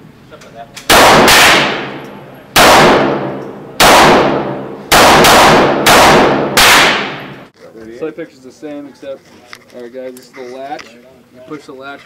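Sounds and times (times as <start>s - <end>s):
handgun shots with echo: 0.8s - 7.4s.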